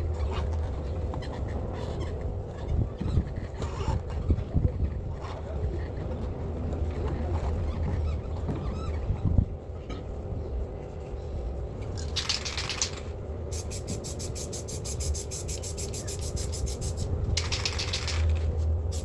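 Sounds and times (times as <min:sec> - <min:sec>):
mixing ball rattling in can: 0:12.0 - 0:14.3, 0:15.6 - 0:19.0
spray paint can hissing: 0:12.0 - 0:19.0.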